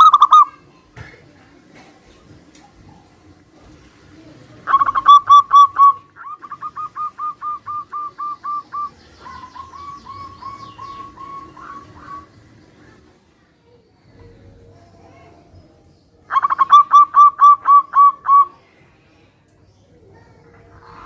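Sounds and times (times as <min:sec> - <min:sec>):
doves cooing: 0:00.0 - 0:00.6, 0:01.6 - 0:13.2, 0:16.3 - 0:18.6.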